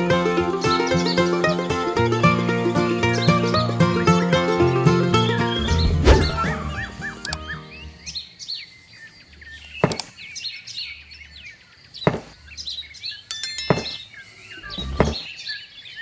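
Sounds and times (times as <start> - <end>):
small birds chirping: 0.0 - 4.2, 5.2 - 16.0
music: 0.0 - 8.1
panels knocking on gravel: 13.3 - 14.0.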